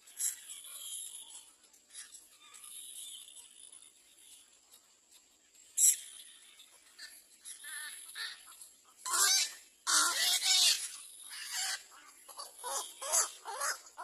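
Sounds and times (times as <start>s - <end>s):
bird harsh calls: 5.8s - 14.0s.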